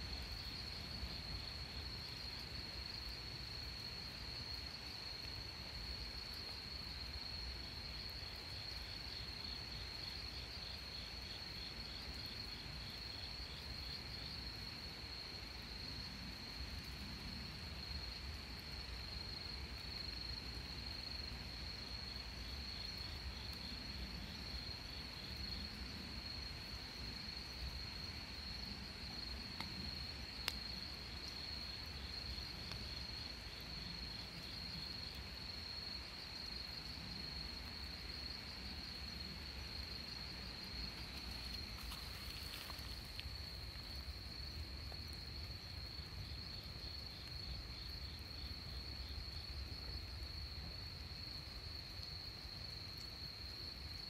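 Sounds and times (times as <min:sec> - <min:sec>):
rapid pulsed insect chirping: 0:17.5 - 0:54.0
insects trilling: 0:17.8 - 0:54.0.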